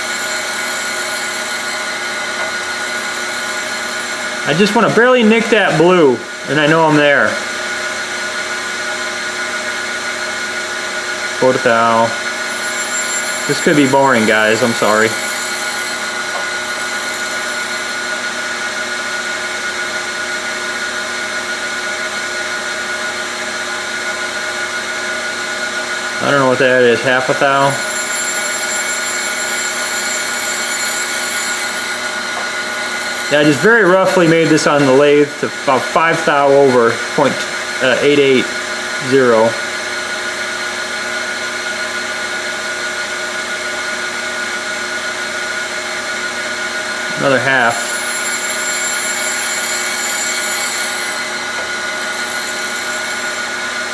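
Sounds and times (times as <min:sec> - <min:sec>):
grinding wheel whining: 0:00.0 - 0:05.9, 0:11.4 - 0:19.9, 0:27.2 - 0:35.4, 0:46.9 - 0:53.9.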